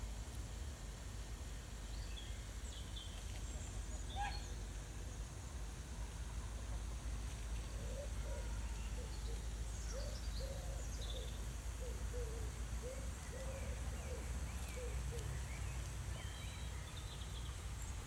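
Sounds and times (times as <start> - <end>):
small birds chirping: 7.7 - 18.0.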